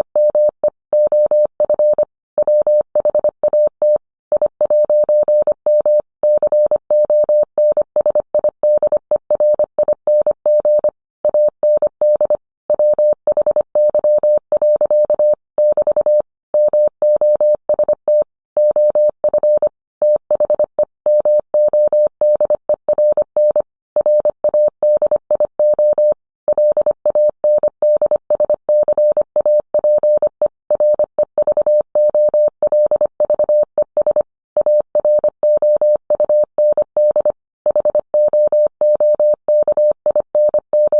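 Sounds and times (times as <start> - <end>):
morse code tone: 25.8 - 40.9.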